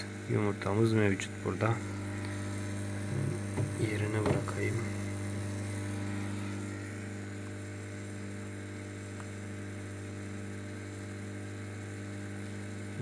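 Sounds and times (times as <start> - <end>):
incubator electrical hum: 0.0 - 13.0.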